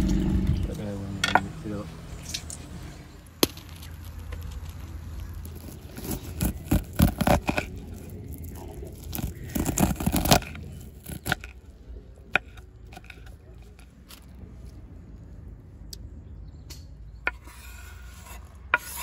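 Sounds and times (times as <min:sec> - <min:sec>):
utensils clicking and scraping: 0:03.7 - 0:11.6, 0:12.3 - 0:14.3.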